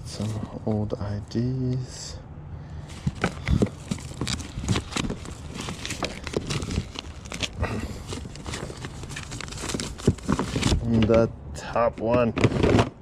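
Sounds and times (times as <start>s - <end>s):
small items clacking and rustling: 2.9s - 11.3s, 11.9s - 13.0s.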